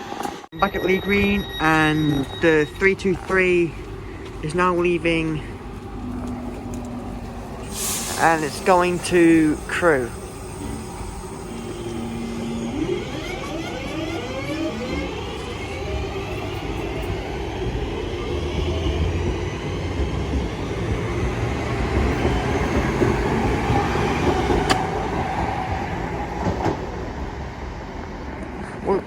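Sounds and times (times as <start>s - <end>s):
train wheel noise: 0.0s - 27.1s
electric train motors whining: 5.6s - 19.9s.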